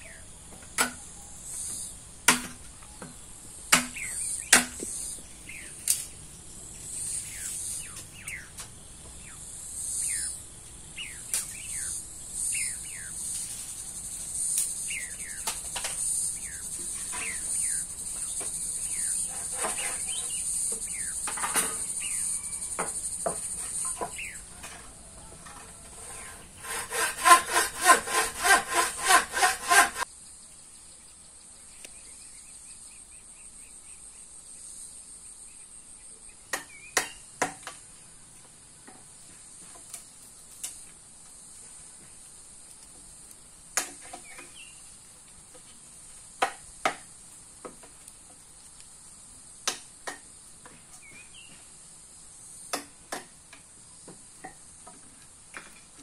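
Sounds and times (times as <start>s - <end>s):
insects trilling: 0.0s - 56.0s
rhythmic scraping strokes: 12.6s - 21.6s, 23.3s - 30.1s.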